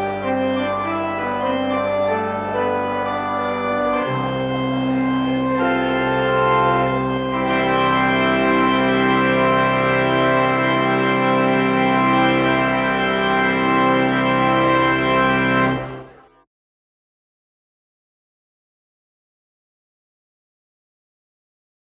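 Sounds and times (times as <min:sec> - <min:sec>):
church organ chords: 0:00.0 - 0:16.4.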